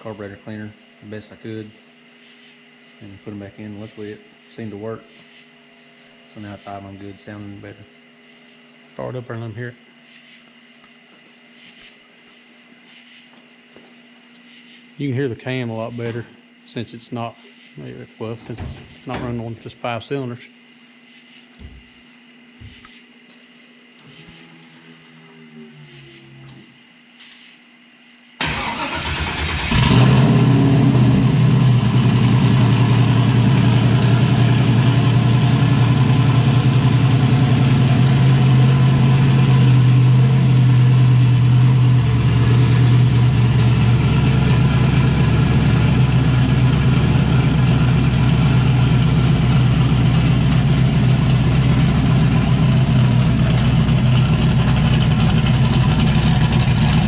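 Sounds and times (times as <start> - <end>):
car engine cranking: 28.4 - 57.0
engine idling: 28.4 - 57.0.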